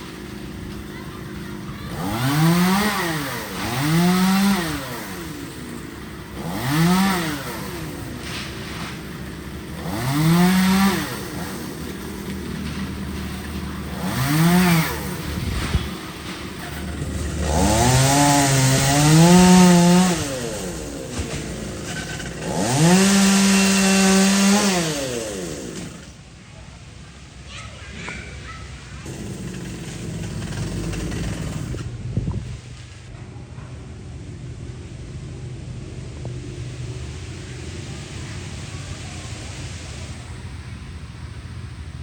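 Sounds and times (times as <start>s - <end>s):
chainsaw revving: 0.0s - 26.2s, 29.0s - 32.4s.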